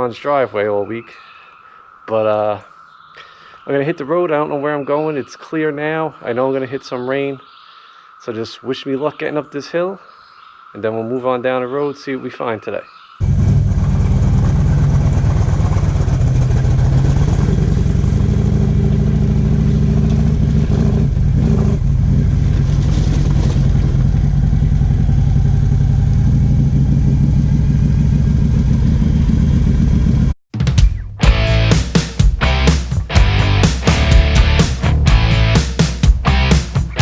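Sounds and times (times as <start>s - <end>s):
motorcycle engine running: 13.2s - 30.3s, 31.2s - 37.0s.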